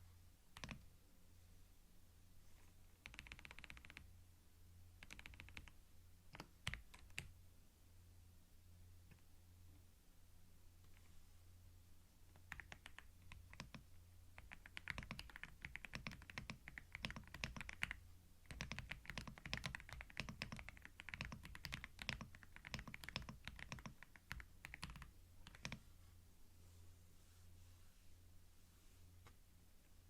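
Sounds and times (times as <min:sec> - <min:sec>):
faint low hum: 0:00.0 - 0:30.0
computer keyboard typing: 0:00.6 - 0:00.8, 0:03.0 - 0:04.0, 0:05.0 - 0:07.3, 0:12.3 - 0:25.8.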